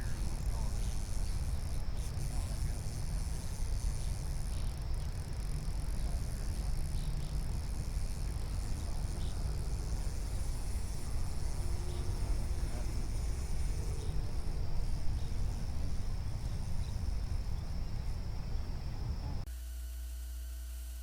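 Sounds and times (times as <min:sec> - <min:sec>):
steady low rumble: 0:00.0 - 0:19.4
insects droning: 0:00.0 - 0:19.5.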